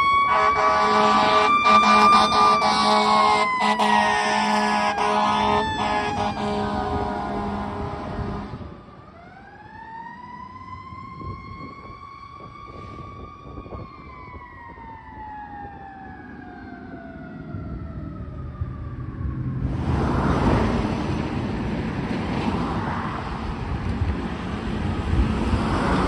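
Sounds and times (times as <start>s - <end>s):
truck engine rumbling: 0.0s - 9.0s
truck passing close by: 0.0s - 9.0s, 18.1s - 26.0s
fire truck siren wailing: 0.0s - 21.7s.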